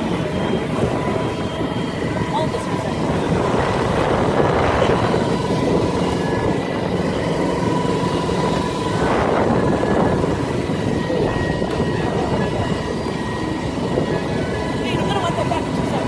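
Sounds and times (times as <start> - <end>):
motorboat engine whine: 0.0 - 16.0.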